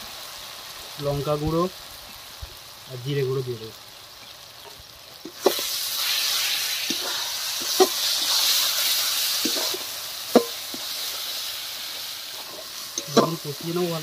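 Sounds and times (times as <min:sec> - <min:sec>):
masala sizzling in oil: 0:00.0 - 0:14.0.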